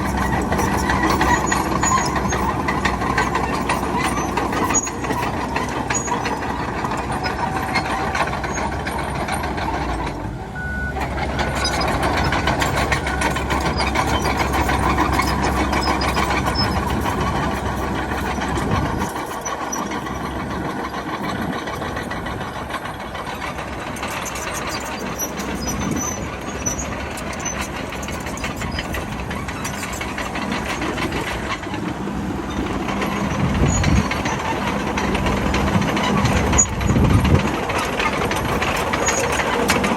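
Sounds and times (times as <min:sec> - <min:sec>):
bulldozer diesel engine clattering: 0:00.0 - 0:39.9
back-up alarm beeping: 0:10.6 - 0:11.0.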